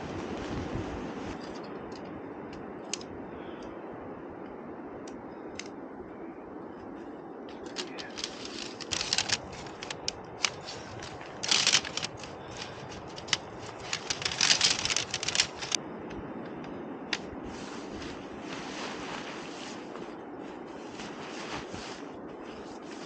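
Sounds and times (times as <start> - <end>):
steady hiss: 0.0 - 23.0
rustling and crunching gear: 7.5 - 15.8.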